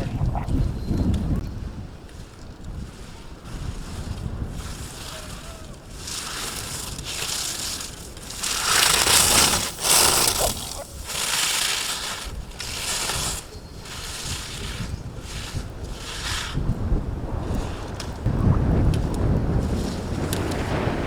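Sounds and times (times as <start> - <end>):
skis scraping over snow: 1.4 - 21.0.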